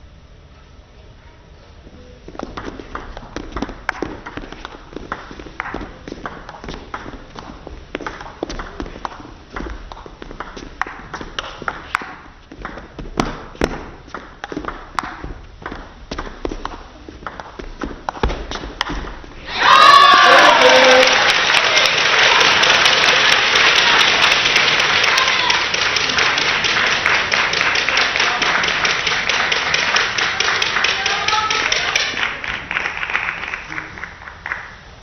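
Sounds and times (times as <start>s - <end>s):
footwork thumps: 2.2s - 19.4s
audience applause and cheering: 19.4s - 34.9s.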